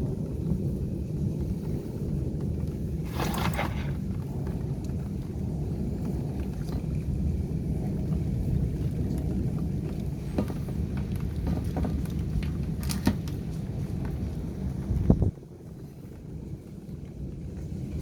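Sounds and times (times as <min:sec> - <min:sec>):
storm wind buffeting microphone: 0:00.0 - 0:18.0.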